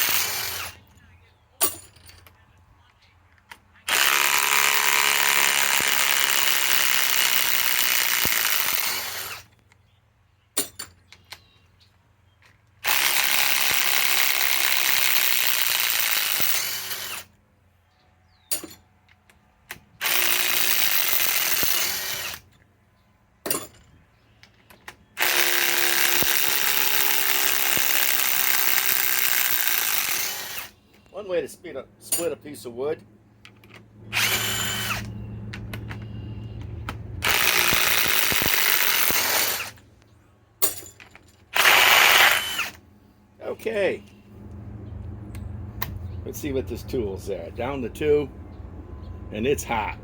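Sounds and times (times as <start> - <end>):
impact wrench hammering screws: 0.0 - 0.7, 25.2 - 30.7, 37.2 - 39.8, 40.6 - 42.8.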